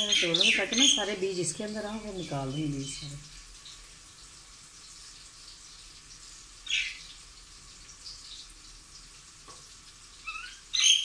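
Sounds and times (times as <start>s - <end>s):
bird chirping: 0.0s - 1.2s, 6.7s - 7.0s
faint steady hiss: 0.0s - 11.0s.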